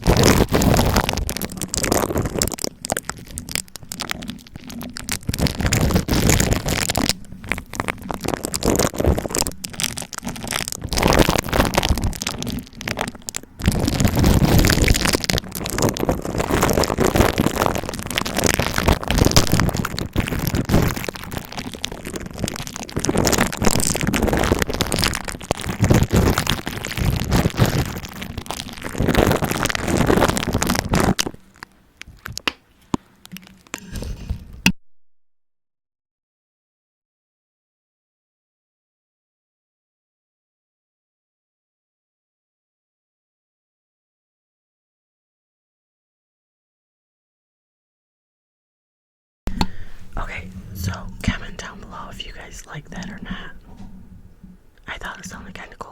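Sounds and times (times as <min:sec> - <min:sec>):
crackling and rustling on microphone: 0:00.0 - 0:34.7, 0:49.5 - 0:55.9.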